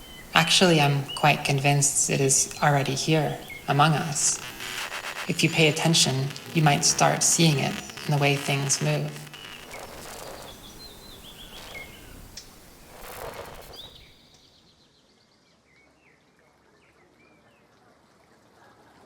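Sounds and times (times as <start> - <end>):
small birds chirping: 0.0 - 14.6
outdoor background noise: 0.0 - 19.0.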